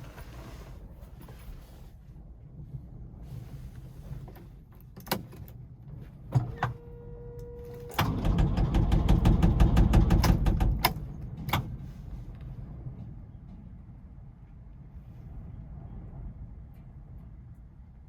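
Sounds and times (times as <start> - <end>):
diesel engine chugging: 8.1 - 13.7.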